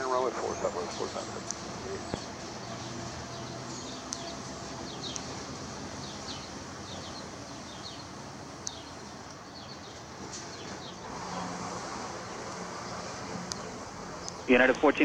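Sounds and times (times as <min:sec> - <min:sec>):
songbirds chirping: 0:00.0 - 0:15.0
steady background hiss: 0:00.0 - 0:15.0.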